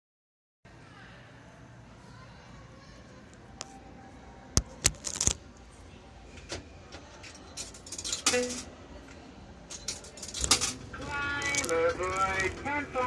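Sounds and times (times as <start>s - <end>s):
coin mechanism clicks: 7.2s - 8.7s, 9.7s - 12.7s.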